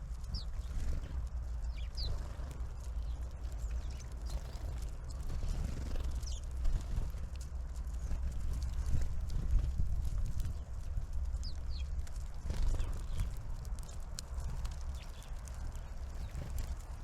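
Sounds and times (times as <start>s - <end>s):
small birds calling: 0.2s - 6.5s, 10.4s - 17.0s.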